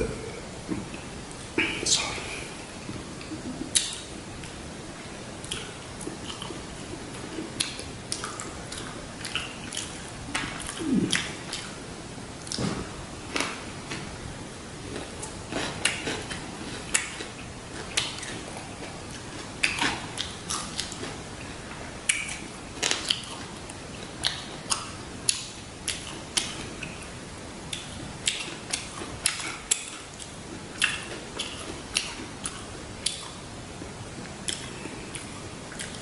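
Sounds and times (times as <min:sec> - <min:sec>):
wet mouth clicks: 0:34.5 - 0:36.0.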